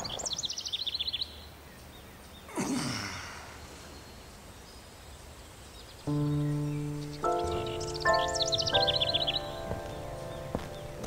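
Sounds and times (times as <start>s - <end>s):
faint outdoor ambience: 0.0s - 11.0s
bird trilling: 6.1s - 11.0s.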